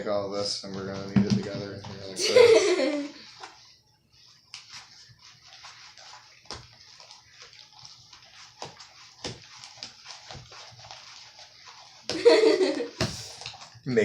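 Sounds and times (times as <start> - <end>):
slime squelching: 3.0 - 12.2.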